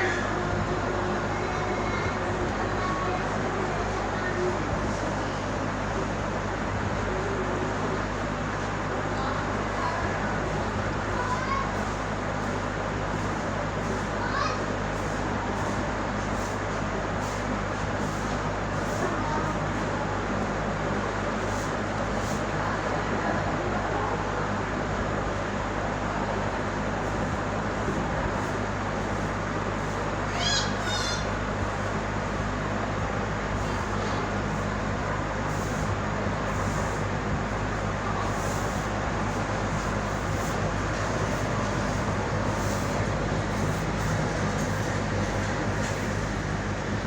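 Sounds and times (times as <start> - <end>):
steady mechanical hum: 0.0 - 47.0
constant rushing noise: 27.0 - 47.0.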